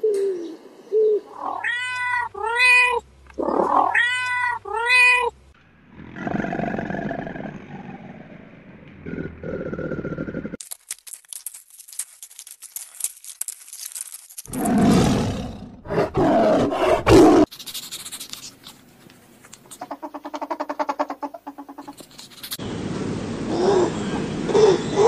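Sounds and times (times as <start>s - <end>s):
large animal roaring calls: 5.8s - 10.6s, 14.5s - 17.5s
fast crackling clicks: 10.6s - 14.9s.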